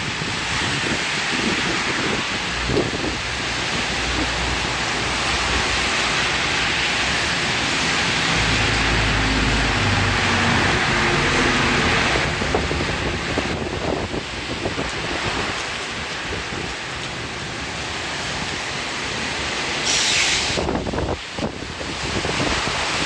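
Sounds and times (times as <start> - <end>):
gusty wind rumbling: 0.0 - 23.0
heavy rain: 0.0 - 23.0.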